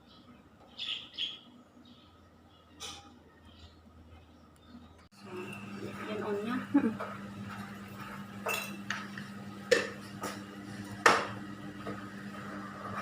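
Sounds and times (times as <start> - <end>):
utensils clinking against pots: 5.3 - 10.0.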